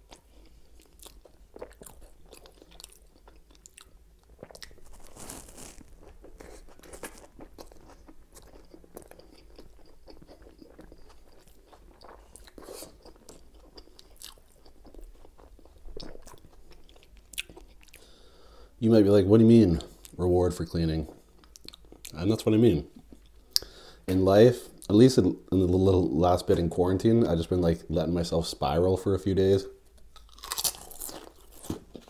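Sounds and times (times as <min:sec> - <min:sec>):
chewing with crunches: 0:00.0 - 0:18.1, 0:30.2 - 0:32.0.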